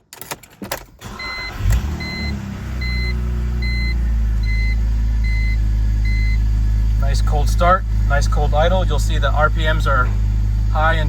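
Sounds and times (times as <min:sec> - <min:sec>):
car engine starting and idling: 0:00.0 - 0:11.0
dashboard warning chime beeping: 0:01.0 - 0:06.5.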